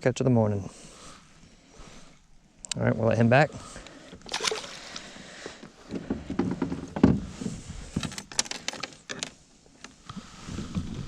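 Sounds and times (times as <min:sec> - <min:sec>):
knocks and thumps on a kayak: 0:05.8 - 0:08.2.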